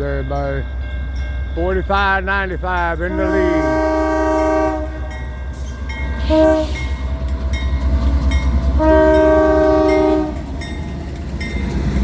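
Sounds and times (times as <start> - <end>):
diesel locomotive engines rumbling: 0.0 - 12.0
locomotive horn blasts: 3.0 - 5.2, 6.2 - 7.0, 8.8 - 10.5.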